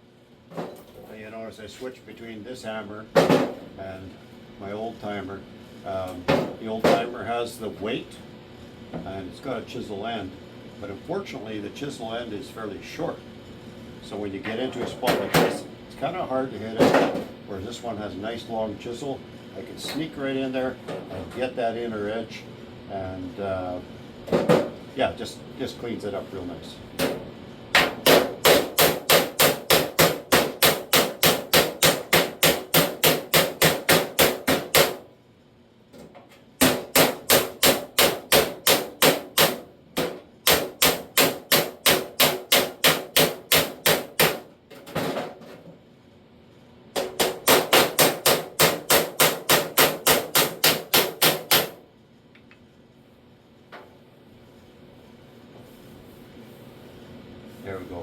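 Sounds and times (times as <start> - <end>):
hammer striking sheet steel: 27.8 - 35.0, 36.6 - 44.5, 47.0 - 51.8.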